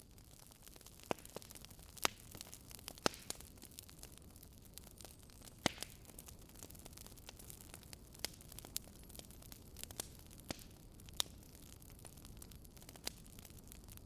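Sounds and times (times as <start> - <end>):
logs crackling in fireplace: 0.0 - 14.0.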